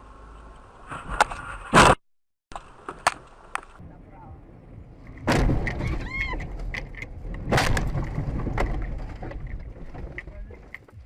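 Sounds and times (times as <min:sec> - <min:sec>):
loud vehicle crash impacts: 0:05.2 - 0:06.8, 0:07.4 - 0:10.0
knocks and rattles: 0:05.2 - 0:11.0.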